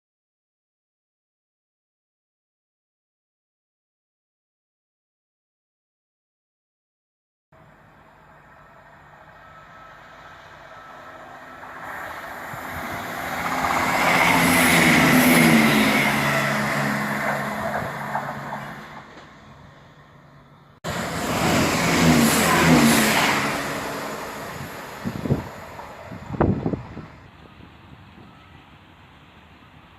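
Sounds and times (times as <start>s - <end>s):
diesel train passing: 7.6s - 29.9s.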